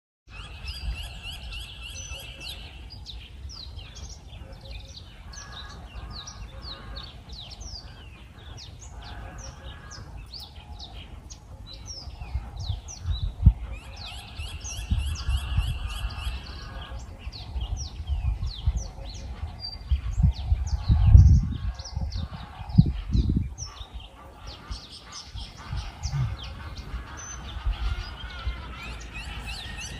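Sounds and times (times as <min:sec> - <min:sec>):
bird trill: 0:00.3 - 0:03.2, 0:24.6 - 0:29.9
birds chirping: 0:00.3 - 0:29.9
low rumbling noise: 0:25.4 - 0:28.3.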